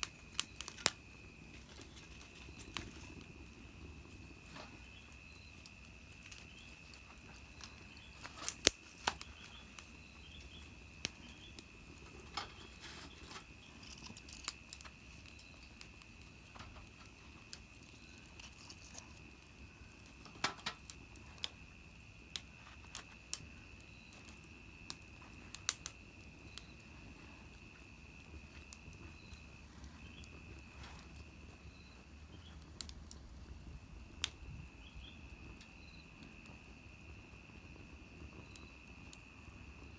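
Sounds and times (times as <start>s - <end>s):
wood fire crackling: 0.0s - 39.9s
sharp pops and snaps: 4.5s - 26.8s.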